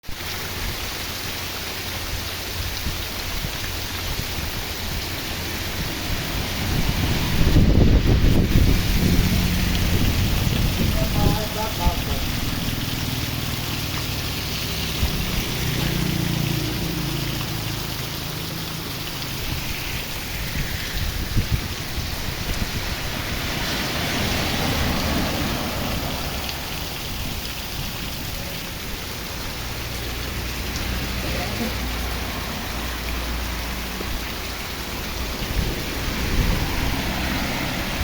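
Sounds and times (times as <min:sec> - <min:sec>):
raindrops knocking on surfaces: 0:00.0 - 0:38.0
steady rain hiss: 0:00.0 - 0:38.0.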